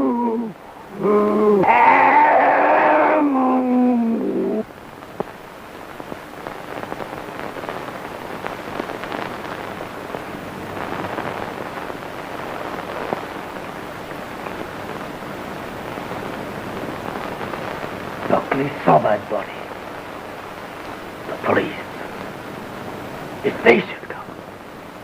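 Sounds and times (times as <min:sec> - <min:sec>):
film soundtrack hiss and crackle: 0:00.0 - 0:25.0.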